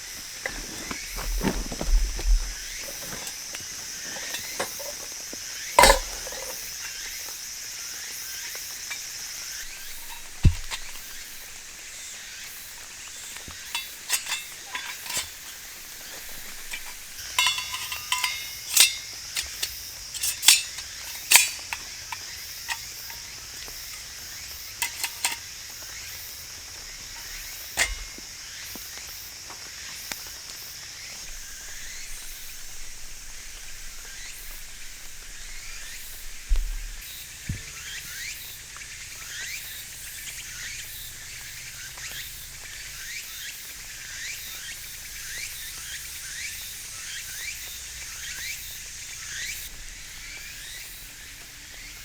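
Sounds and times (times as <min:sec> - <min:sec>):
metal cookware clinking: 0:00.1 - 0:07.3, 0:08.3 - 0:12.0, 0:12.6 - 0:24.2, 0:24.8 - 0:25.5, 0:27.1 - 0:28.2.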